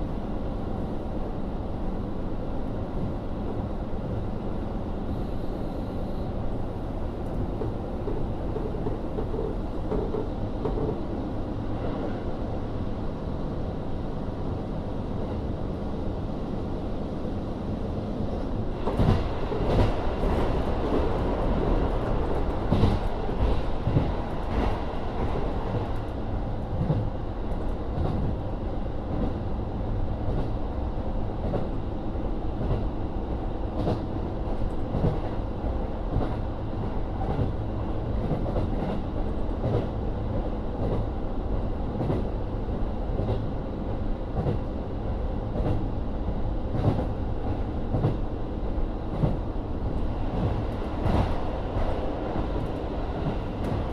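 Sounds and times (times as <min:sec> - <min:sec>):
diesel railcar rumble: 0:00.0 - 0:53.9.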